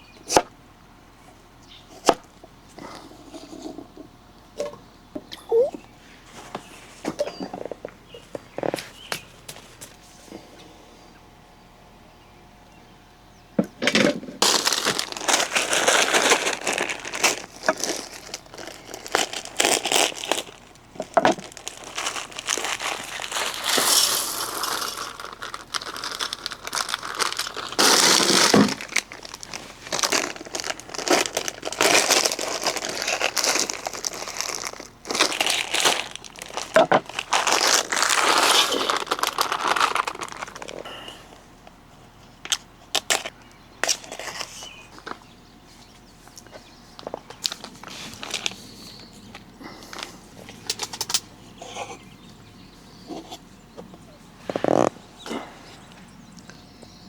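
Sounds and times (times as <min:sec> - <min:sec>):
wrapping crinkling: 0:14.4 - 0:40.9, 0:47.4 - 0:49.1.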